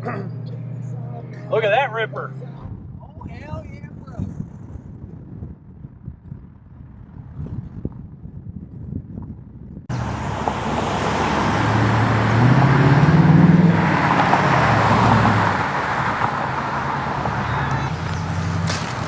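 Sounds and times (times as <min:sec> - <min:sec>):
car engine accelerating: 0:09.9 - 0:19.0.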